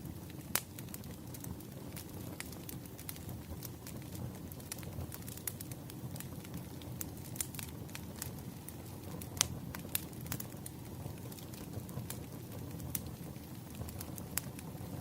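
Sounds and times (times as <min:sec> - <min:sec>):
firewood crackling and popping: 0:00.0 - 0:15.0.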